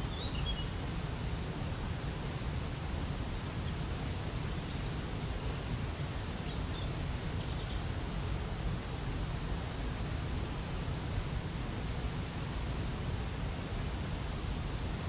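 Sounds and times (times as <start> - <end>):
faint bird chirps: 0.0 - 0.7.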